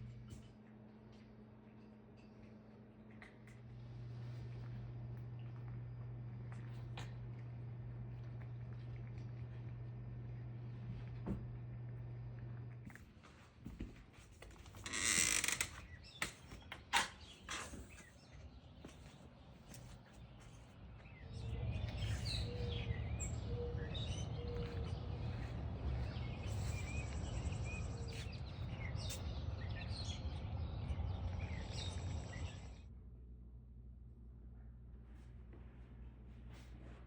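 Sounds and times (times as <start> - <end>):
low outdoor rumble: 0.0 - 13.3, 17.8 - 37.0
small birds chirping: 15.7 - 32.8.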